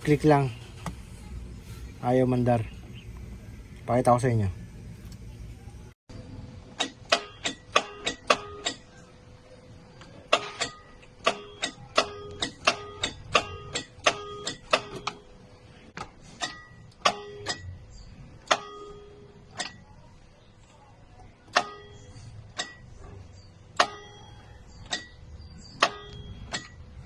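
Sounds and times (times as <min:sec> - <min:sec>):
starter solenoid clicking: 0:00.0 - 0:06.0.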